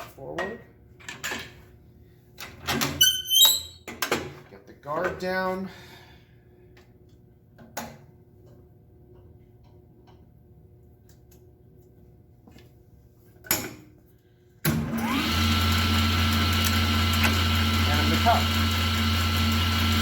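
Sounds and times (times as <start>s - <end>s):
table saw motor whining: 14.8s - 20.0s.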